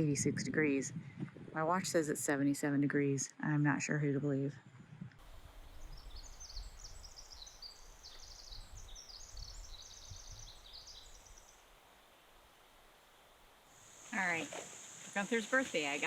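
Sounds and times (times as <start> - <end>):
low rumble of wind: 0.0 - 16.0
small birds chirping: 5.5 - 11.7.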